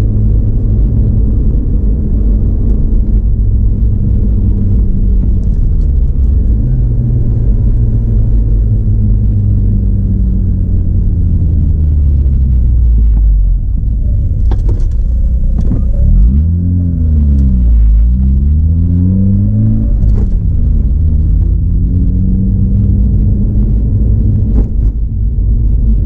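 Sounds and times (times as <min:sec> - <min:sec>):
rotary engine droning and revving: 0:00.0 - 0:26.0.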